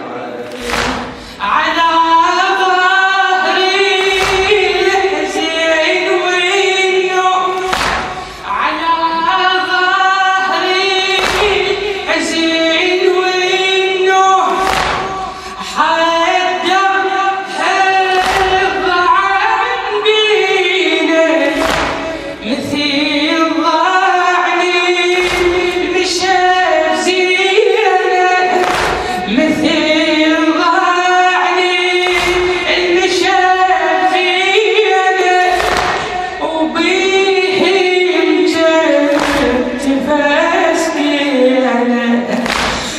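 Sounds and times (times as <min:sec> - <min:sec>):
chorus of voices chanting: 0:00.0 - 0:23.6, 0:24.2 - 0:42.9
heavy thump marking the beat: 0:00.5 - 0:01.4, 0:03.9 - 0:05.4, 0:07.6 - 0:08.4, 0:11.1 - 0:12.3, 0:14.5 - 0:15.6, 0:18.1 - 0:19.2, 0:21.5 - 0:22.5, 0:25.1 - 0:26.4, 0:28.6 - 0:29.5, 0:32.0 - 0:33.3, 0:35.5 - 0:36.4, 0:39.1 - 0:39.9, 0:42.4 - 0:42.9.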